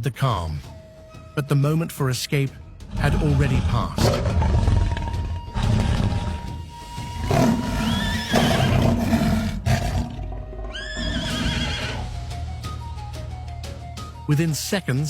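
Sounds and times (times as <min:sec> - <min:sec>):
zebra distress calls: 0:02.9 - 0:12.1.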